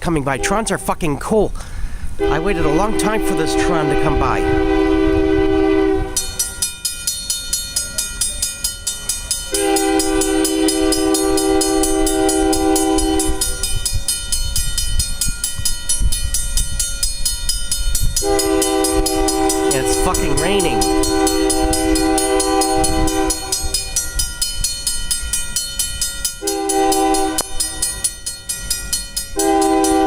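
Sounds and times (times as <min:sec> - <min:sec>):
passing train rumble: 0:00.0 - 0:30.0
locomotive air horn chord: 0:02.1 - 0:06.5, 0:09.5 - 0:14.0, 0:18.2 - 0:24.1, 0:26.4 - 0:28.1, 0:29.3 - 0:30.0
bell ringing fast: 0:06.2 - 0:30.0.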